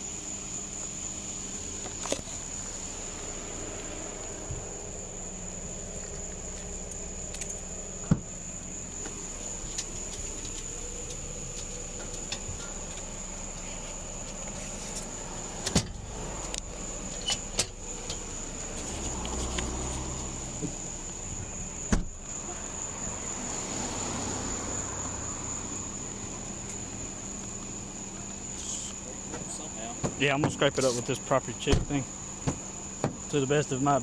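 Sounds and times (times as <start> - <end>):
clicks and jingling of keys: 6.8 - 7.7.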